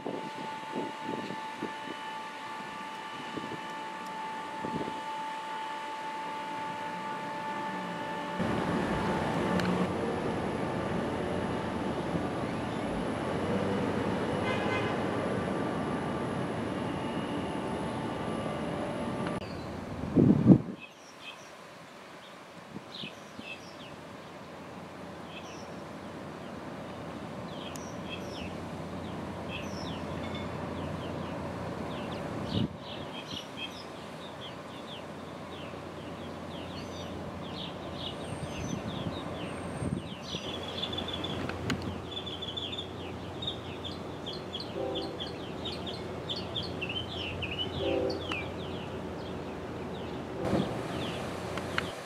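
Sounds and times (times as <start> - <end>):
outdoor background hum: 0.0 - 22.1, 23.0 - 52.0
small birds chirping: 27.5 - 50.3.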